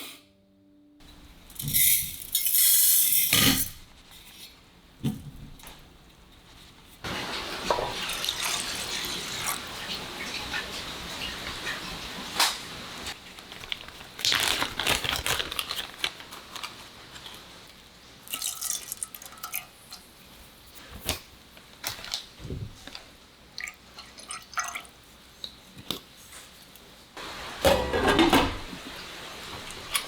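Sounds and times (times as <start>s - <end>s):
rustling: 13.1s - 17.7s.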